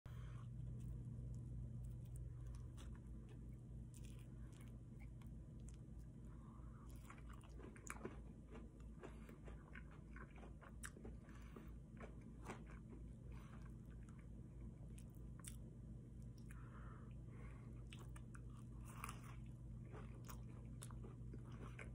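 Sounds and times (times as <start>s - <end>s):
faint low hum: 0.0s - 21.9s
chewing and crunching: 0.2s - 21.9s.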